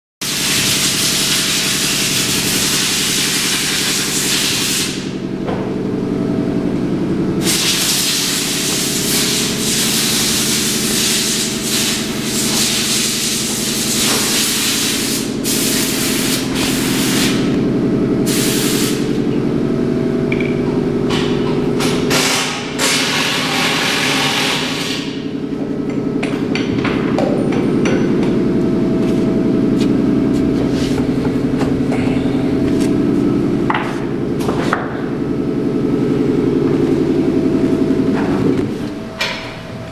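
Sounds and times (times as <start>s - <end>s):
engine idling: 1.7s - 24.0s, 24.8s - 39.9s.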